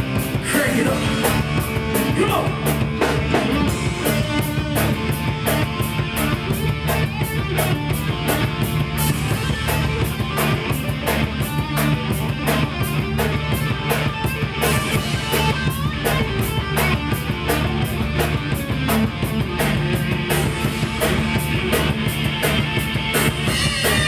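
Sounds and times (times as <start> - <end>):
bass guitar: 0.0 - 24.0
electric guitar: 0.0 - 24.0
steady drum beat: 0.0 - 24.0.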